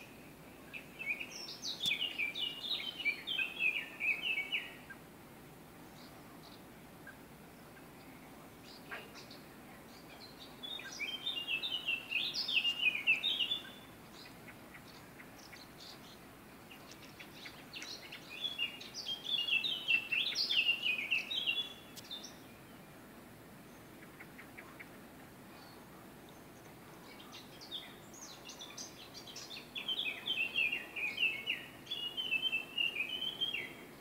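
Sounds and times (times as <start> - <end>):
faint steady background hiss: 0.0 - 34.0
songbird singing high notes: 17.3 - 22.6.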